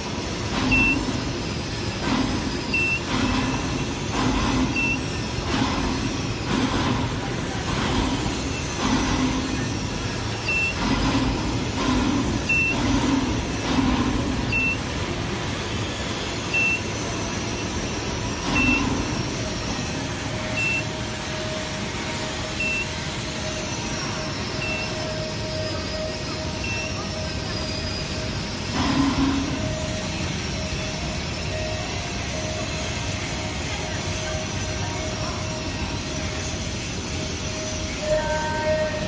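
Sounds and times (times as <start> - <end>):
industrial machinery din: 0.0 - 39.0
short high electronic beep: 0.6 - 1.2, 16.4 - 17.0, 18.4 - 19.0, 20.5 - 20.9, 22.5 - 23.0, 24.5 - 28.0.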